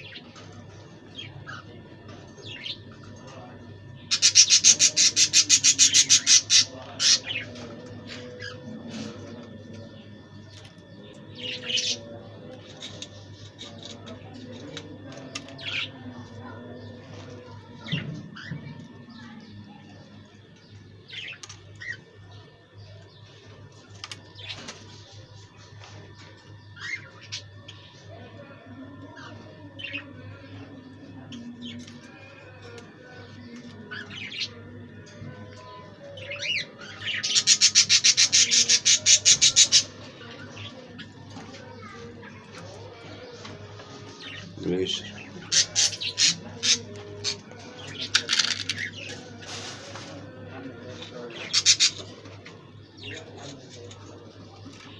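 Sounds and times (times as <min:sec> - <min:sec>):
budgerigars chirping and chattering: 0:00.0 - 0:54.9
budgerigars chirping: 0:04.1 - 0:07.3, 0:37.2 - 0:39.9, 0:51.6 - 0:52.1.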